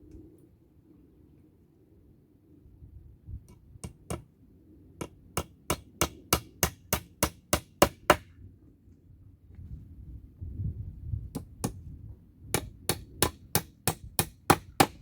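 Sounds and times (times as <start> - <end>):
hammer hitting nails: 5.0 - 8.2, 12.6 - 15.0.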